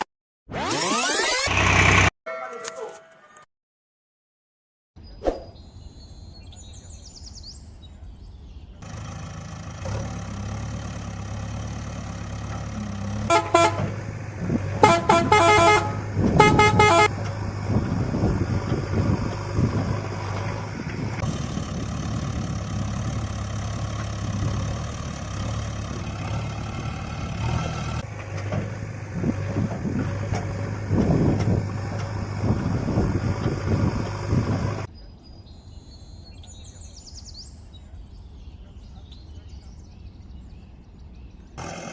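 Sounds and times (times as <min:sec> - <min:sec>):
heavy vehicle engine running: 0:01.0 - 0:02.1, 0:08.8 - 0:34.9, 0:41.6 - 0:41.9
vehicle horn blasts: 0:13.3 - 0:14.0, 0:14.8 - 0:17.2.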